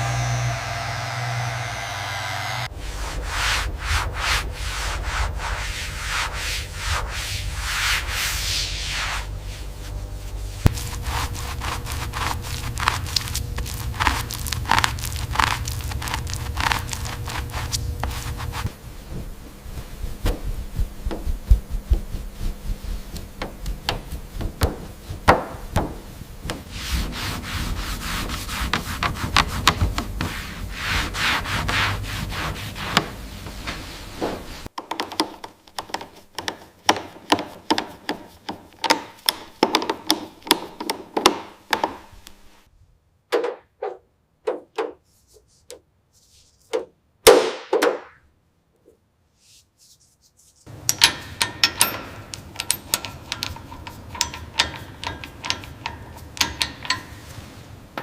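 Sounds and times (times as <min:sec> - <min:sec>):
back-and-forth strokes: 0:00.0 - 0:25.2
rubbing and scraping on car parts: 0:02.6 - 0:42.7, 0:43.7 - 0:47.0, 0:49.4 - 0:58.0.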